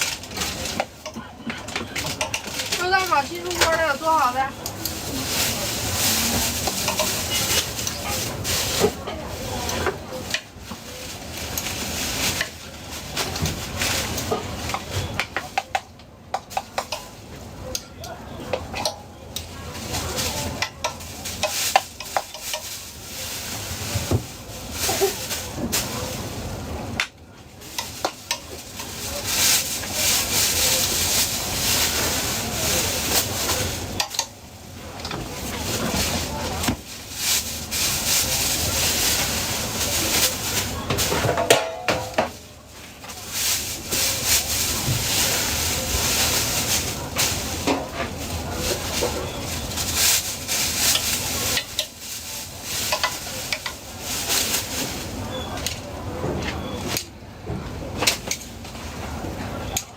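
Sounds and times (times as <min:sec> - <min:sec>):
utensils scraping a pan: 0:05.9 - 0:09.0.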